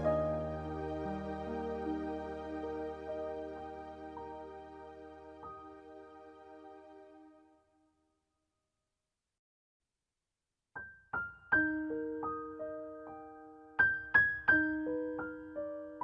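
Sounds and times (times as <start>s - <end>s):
slow gentle piano melody: 0.0s - 7.5s, 10.8s - 16.0s.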